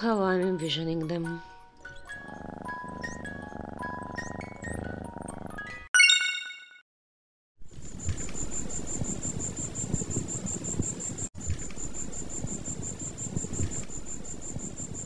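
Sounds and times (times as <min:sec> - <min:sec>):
crickets chirping: 0:07.8 - 0:15.0.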